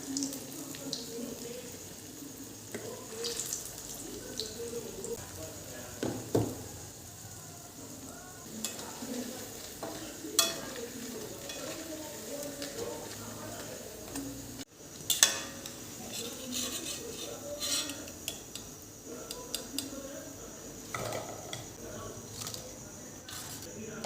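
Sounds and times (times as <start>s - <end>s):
food sizzling in a pan: 0.0s - 24.0s
utensil scraping pan: 15.1s - 18.1s.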